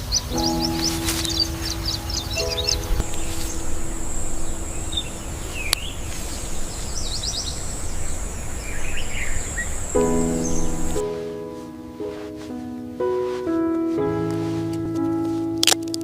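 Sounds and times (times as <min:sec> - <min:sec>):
birds chirping: 0:00.0 - 0:11.4
soft background music: 0:00.0 - 0:16.0
low rushing noise: 0:00.4 - 0:12.4
high-pitched drone: 0:01.5 - 0:08.5.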